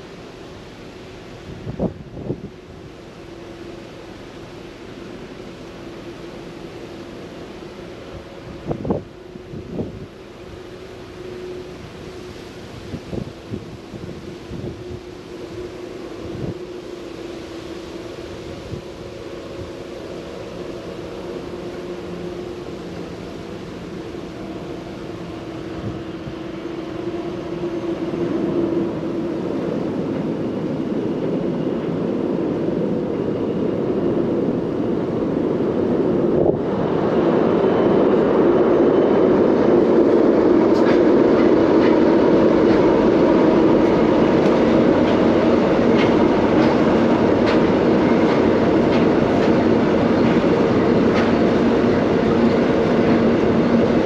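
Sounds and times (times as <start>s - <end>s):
locomotive engines droning: 0.0s - 54.0s
train wheels rumbling: 0.0s - 54.0s
rail clicks: 19.1s - 54.0s.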